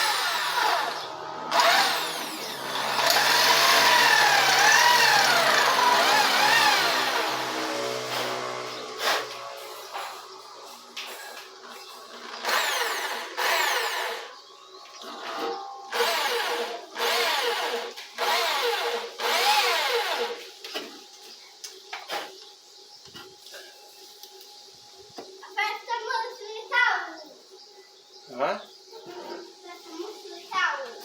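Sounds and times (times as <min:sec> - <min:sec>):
power drill whining: 0:00.0 - 0:10.2, 0:12.1 - 0:14.3, 0:15.0 - 0:20.4.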